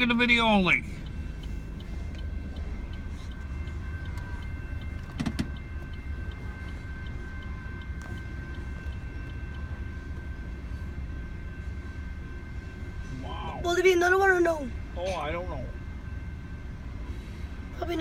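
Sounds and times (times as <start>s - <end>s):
train clank: 0.0s - 10.8s
crossing warning bell ringing: 0.0s - 18.0s
train wheels rumbling on rails: 0.0s - 18.0s.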